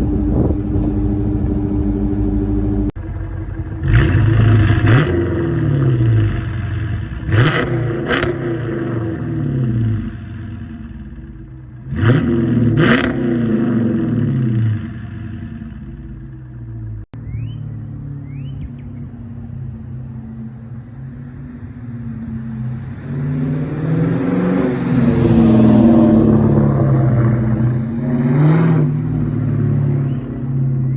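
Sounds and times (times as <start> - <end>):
car engine revving: 0.0 - 17.1, 22.4 - 30.0
engine rumbling idle: 0.0 - 17.1.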